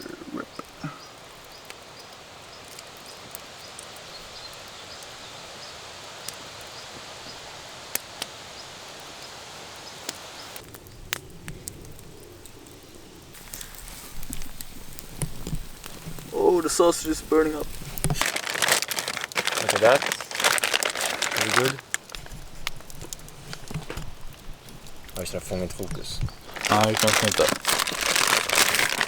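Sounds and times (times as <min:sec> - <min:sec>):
campfire crackling pops: 0:00.0 - 0:29.0
fire hiss: 0:00.0 - 0:29.0
rustling and knocks: 0:17.8 - 0:24.4.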